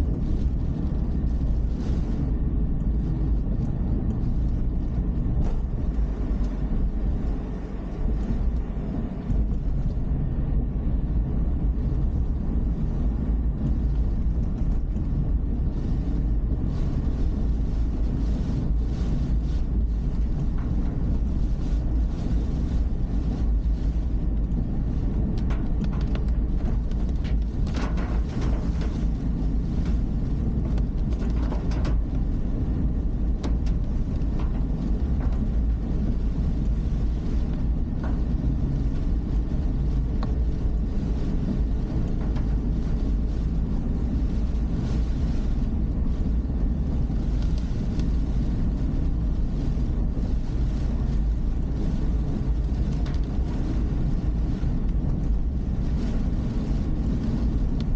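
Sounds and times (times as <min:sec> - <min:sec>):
car engine and road noise: 0:00.0 - 0:57.9
faint clicks and knocks: 0:19.7 - 0:43.5.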